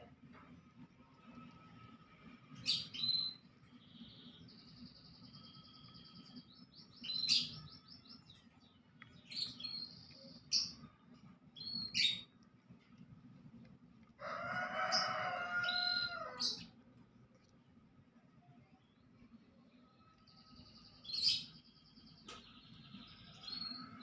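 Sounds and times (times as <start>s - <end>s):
small birds chirping: 2.6s - 13.1s, 14.7s - 17.6s, 18.6s - 24.0s.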